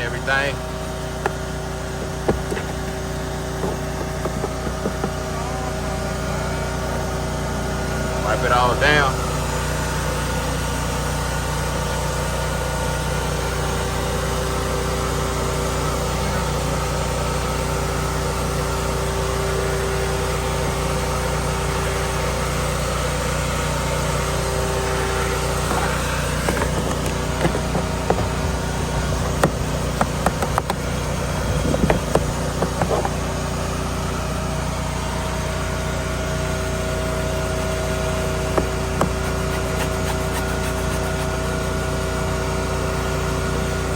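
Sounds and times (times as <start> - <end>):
engine idling: 0.0 - 43.9
clicks and knocks: 2.1 - 5.3, 25.6 - 30.8.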